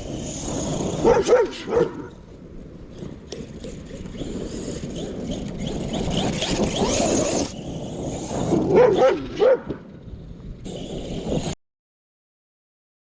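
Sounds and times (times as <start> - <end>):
dog yipping and whining: 8.6 - 9.8.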